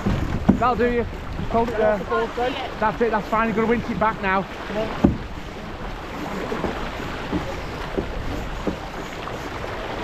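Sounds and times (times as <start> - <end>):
water rushing past boat: 0.0 - 10.0
wind: 0.0 - 10.0
faint knocks: 6.2 - 9.1.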